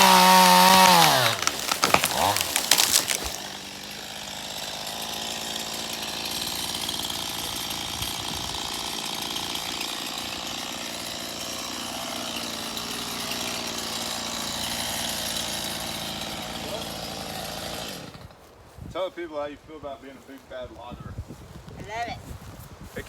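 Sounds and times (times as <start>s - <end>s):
chainsaw idling: 0.0s - 18.4s.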